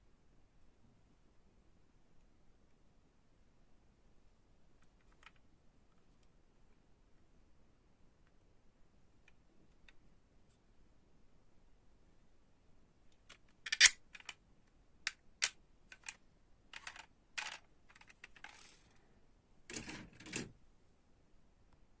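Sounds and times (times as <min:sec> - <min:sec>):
toy cars clattering: 0:13.3 - 0:14.4, 0:15.9 - 0:16.2, 0:16.8 - 0:18.9
toy cars clicking and clinking: 0:13.3 - 0:14.4, 0:15.9 - 0:16.2, 0:16.8 - 0:18.9
toy car scraping: 0:18.4 - 0:18.8.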